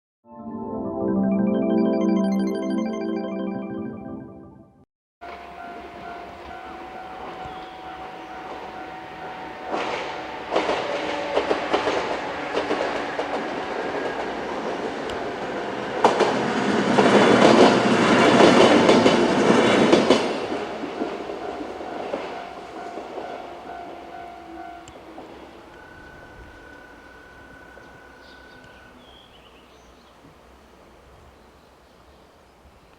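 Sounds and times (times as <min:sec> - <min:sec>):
crossing warning bell ringing: 0:05.2 - 0:15.9, 0:17.1 - 0:29.0
train wheels clacking: 0:06.1 - 0:28.8.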